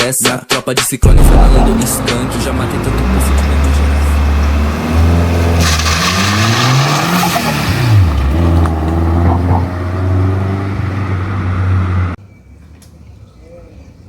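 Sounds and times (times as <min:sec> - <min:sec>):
turbocharged car engine revving: 0:01.0 - 0:12.2.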